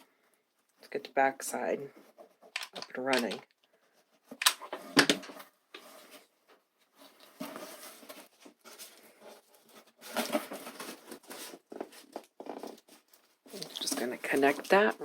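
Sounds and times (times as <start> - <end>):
craft board scraping and rustling: 7.0 - 12.9.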